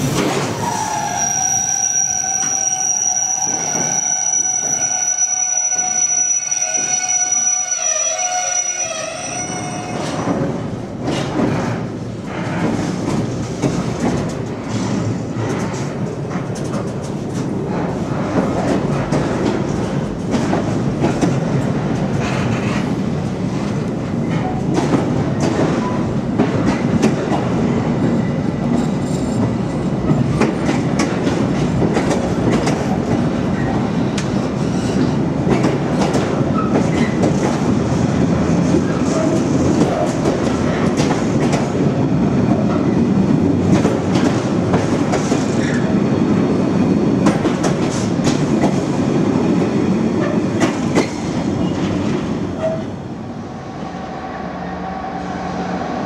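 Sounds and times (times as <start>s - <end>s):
freight train wagons rumbling: 0.0s - 56.0s.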